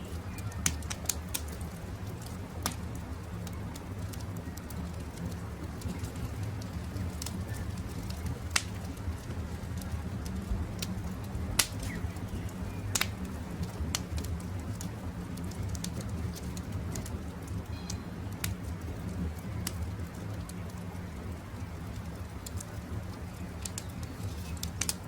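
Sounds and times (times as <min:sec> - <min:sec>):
faint bird chirping: 0:00.0 - 0:00.9, 0:17.7 - 0:18.3
campfire crackling and popping: 0:00.0 - 0:25.0
low steady rumble: 0:00.0 - 0:25.0.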